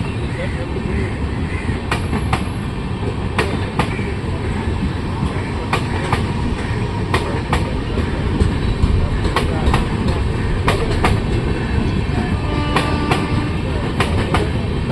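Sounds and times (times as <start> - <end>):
train rumbling on track: 0.0 - 14.9
wheels clacking over rail joints: 4.8 - 14.9.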